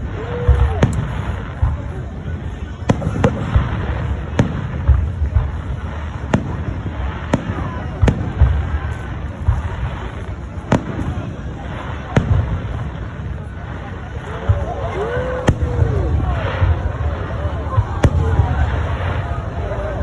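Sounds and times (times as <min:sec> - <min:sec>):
fireworks bangs: 0:00.0 - 0:20.0
low rumble of explosions: 0:00.0 - 0:20.0.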